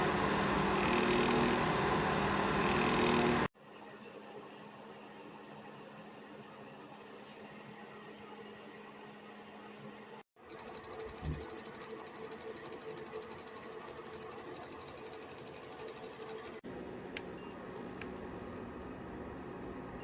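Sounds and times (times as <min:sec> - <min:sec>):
small electric motor humming: 0:00.0 - 0:03.5.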